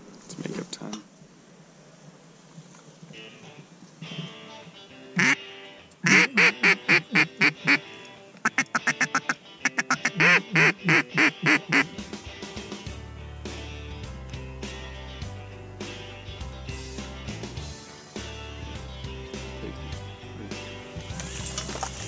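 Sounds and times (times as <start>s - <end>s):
music: 3.1s - 22.0s
duck call quacks: 5.2s - 12.0s.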